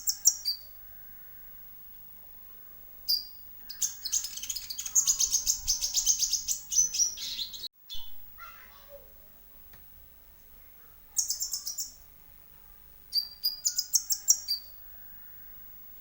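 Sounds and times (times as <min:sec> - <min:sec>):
bird chirping: 0:00.0 - 0:01.6, 0:03.0 - 0:08.3, 0:10.4 - 0:12.1, 0:13.1 - 0:15.7.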